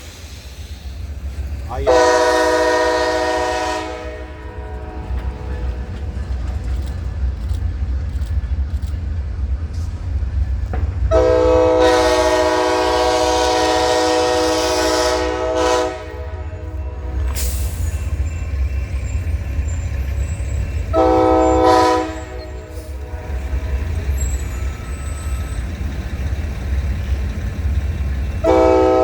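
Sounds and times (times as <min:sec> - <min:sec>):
train rumbling: 0:00.0 - 0:29.0
locomotive air horn blasts: 0:01.8 - 0:05.9, 0:11.1 - 0:17.7, 0:20.9 - 0:24.1, 0:28.4 - 0:29.0.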